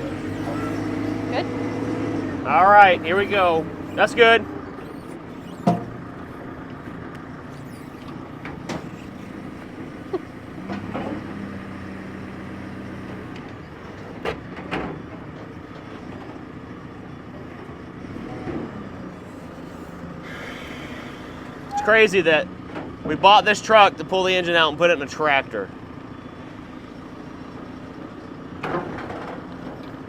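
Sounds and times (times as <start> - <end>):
engine idling: 0.0 - 30.0
knocks and clanks: 4.8 - 7.0.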